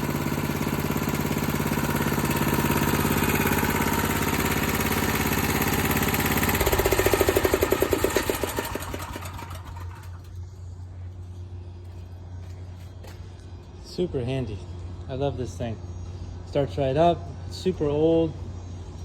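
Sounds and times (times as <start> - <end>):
generator engine running: 0.0 - 19.0.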